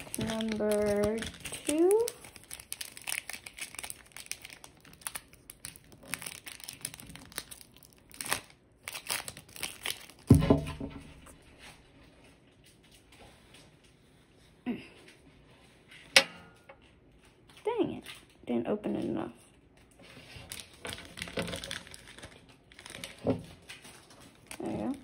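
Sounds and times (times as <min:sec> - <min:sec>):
plastic wrapper crinkling and tearing: 0:00.0 - 0:10.4, 0:19.8 - 0:25.0.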